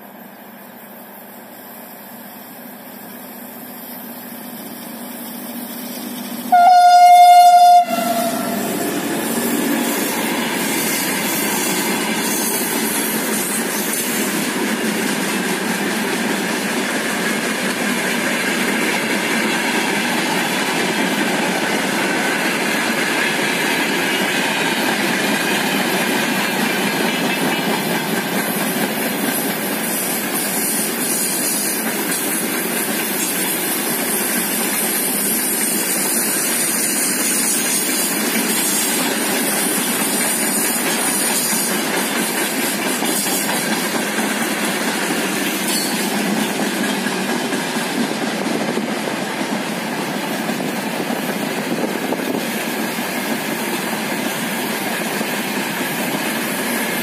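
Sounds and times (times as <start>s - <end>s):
diesel locomotive approaching: 0.0s - 57.0s
train horn blast: 6.5s - 9.0s.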